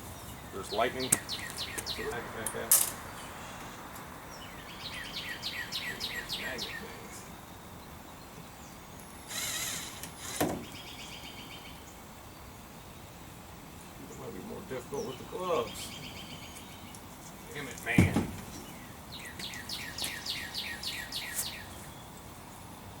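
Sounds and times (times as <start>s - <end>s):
bird chirping: 0.0s - 22.7s
knock of handling: 17.9s - 18.6s.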